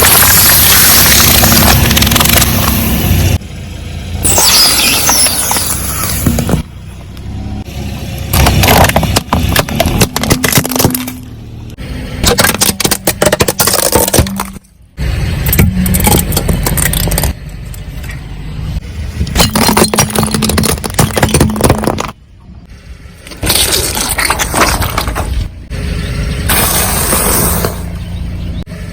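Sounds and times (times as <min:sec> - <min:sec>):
tyres crushing brittle objects: 0:00.0 - 0:03.0, 0:08.3 - 0:11.3, 0:12.2 - 0:14.7, 0:15.5 - 0:17.8, 0:19.2 - 0:22.2, 0:23.2 - 0:25.5
low engine hum: 0:00.5 - 0:04.4, 0:05.4 - 0:13.6, 0:24.5 - 0:28.9.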